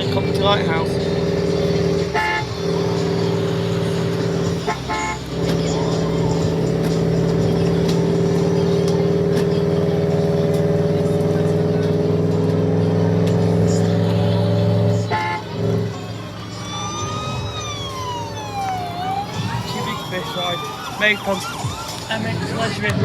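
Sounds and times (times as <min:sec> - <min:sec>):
siren wail: 0:01.4 - 0:08.3, 0:15.1 - 0:22.6.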